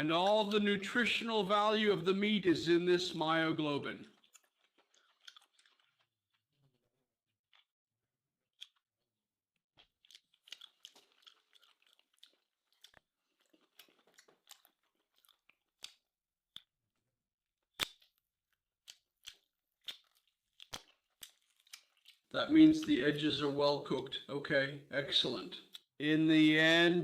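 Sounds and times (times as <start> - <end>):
chewing steak: 4.0 - 7.7, 8.5 - 8.9, 9.8 - 16.8, 18.8 - 23.6.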